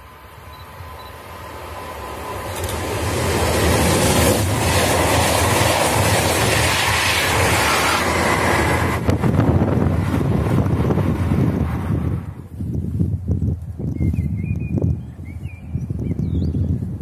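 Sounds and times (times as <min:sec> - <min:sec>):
train passing at speed: 0:00.0 - 0:13.1.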